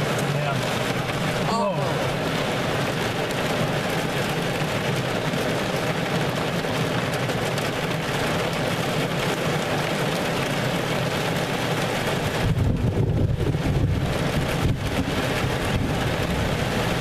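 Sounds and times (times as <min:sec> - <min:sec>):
rain beating down: 0:00.0 - 0:17.0
storm winds: 0:12.2 - 0:17.0
wind rumble on microphone: 0:12.3 - 0:17.0.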